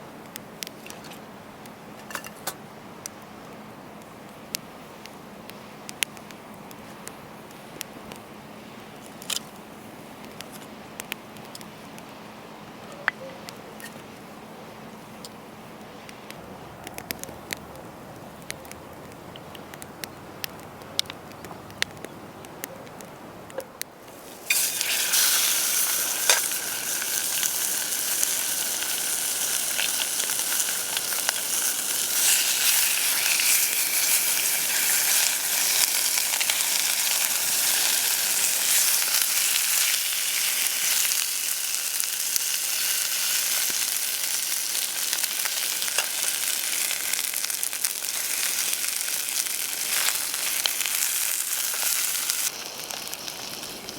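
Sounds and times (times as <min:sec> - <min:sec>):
food sizzling in an oiled pan: 0:24.1 - 0:53.9.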